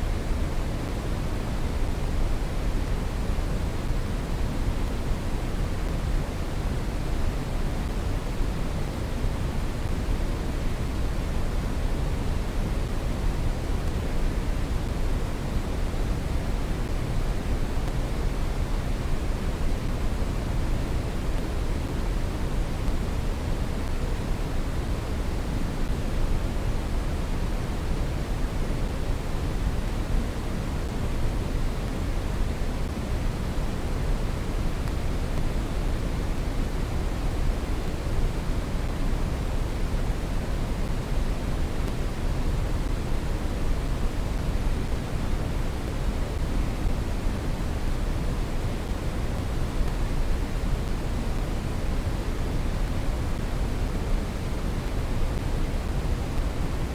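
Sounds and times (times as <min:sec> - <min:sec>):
brown noise hiss: 0:00.0 - 0:56.9.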